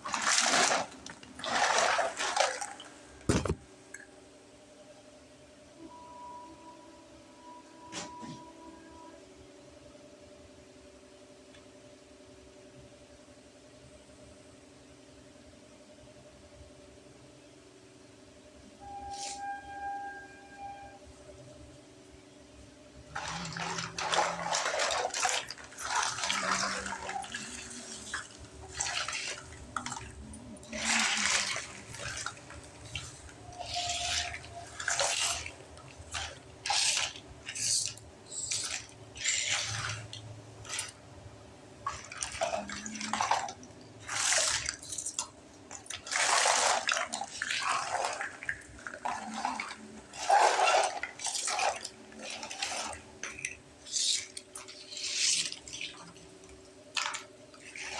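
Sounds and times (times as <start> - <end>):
water splashing into toy sink: 23.2 - 41.0.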